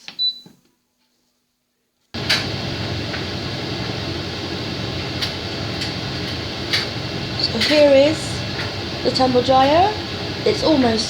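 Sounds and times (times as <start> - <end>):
tumble dryer whirring rumble: 2.2 - 11.0.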